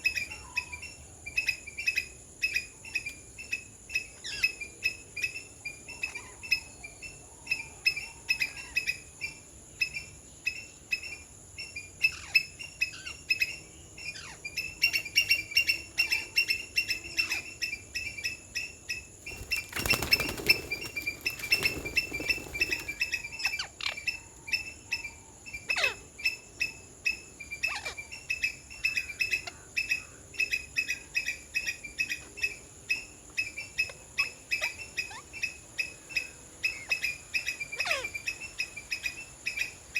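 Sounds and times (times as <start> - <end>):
wing flapping: 19.2 - 23.3.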